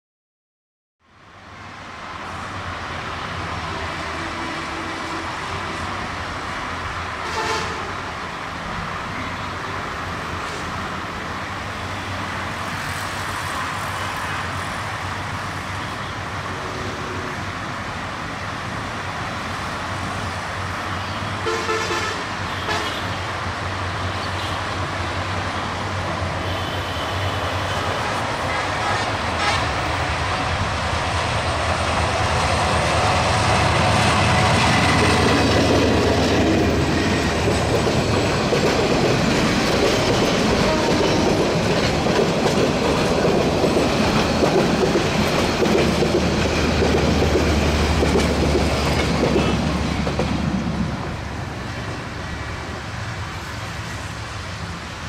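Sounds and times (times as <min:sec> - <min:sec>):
train horn: 0:07.2 - 0:08.0, 0:21.4 - 0:23.2, 0:26.4 - 0:30.0, 0:40.5 - 0:41.2
wheels rattling on rails: 0:27.6 - 0:55.0.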